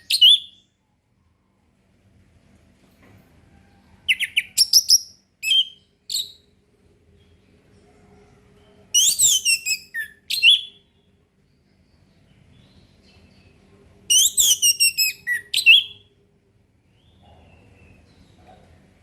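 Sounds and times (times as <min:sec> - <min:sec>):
faint low hum: 0:00.0 - 0:19.0
thrush singing whistled notes: 0:09.0 - 0:10.9, 0:14.1 - 0:16.0.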